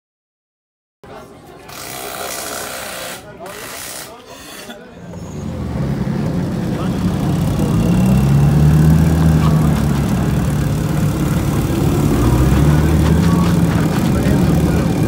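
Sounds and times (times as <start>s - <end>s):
car engine deep exhaust note: 5.2s - 15.0s.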